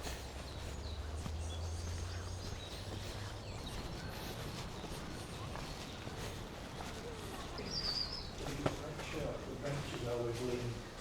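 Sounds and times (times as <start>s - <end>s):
birds chirping: 0.0s - 8.6s.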